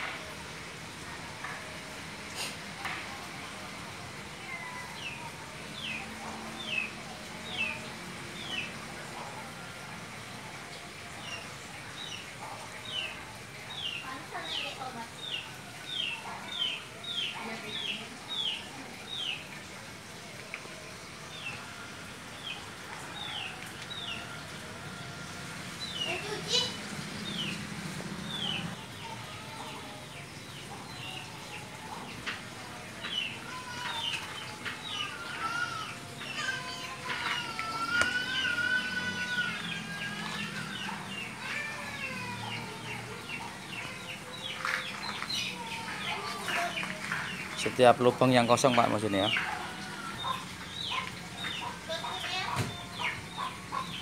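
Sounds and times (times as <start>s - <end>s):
birds chirping and calling: 25.8s - 54.0s.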